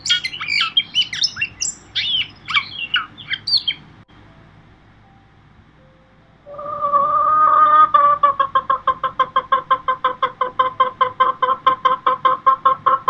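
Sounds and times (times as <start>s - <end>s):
chicken clucking: 6.5s - 13.0s.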